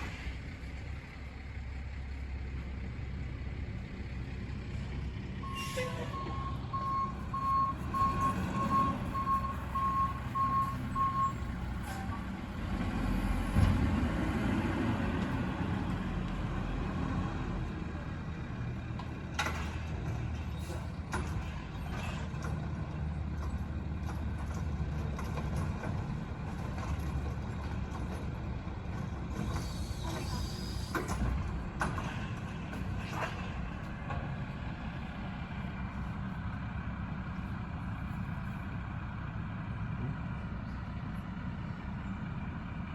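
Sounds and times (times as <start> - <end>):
truck engine running: 0.0 - 42.9
reversing alarm beeping: 5.4 - 12.2.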